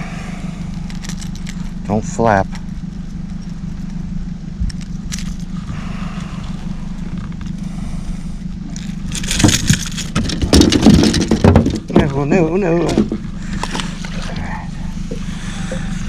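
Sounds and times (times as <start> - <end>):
boat motor humming: 0.0 - 16.0
clattering knocks and scrapes: 8.7 - 14.1.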